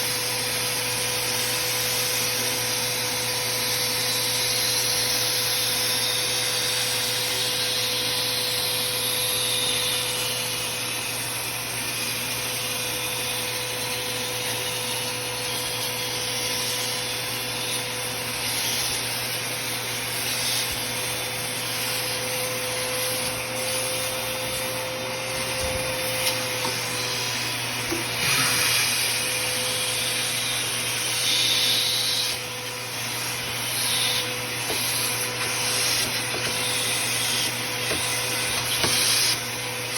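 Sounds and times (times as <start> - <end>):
vacuum cleaner sucking sawdust: 0.0 - 39.9.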